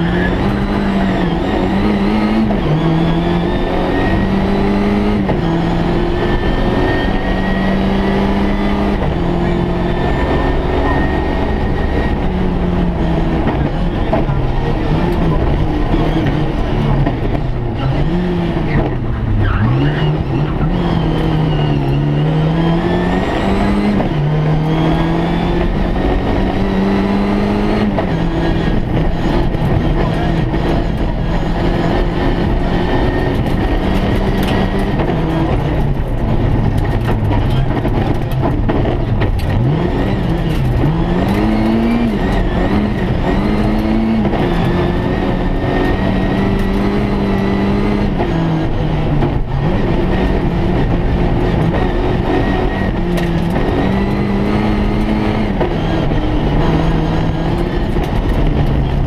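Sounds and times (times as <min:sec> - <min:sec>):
car engine revving: 0:00.0 - 0:59.0
road noise: 0:00.0 - 0:59.0
rattles and clicks: 0:28.7 - 0:48.4, 0:49.1 - 0:59.0.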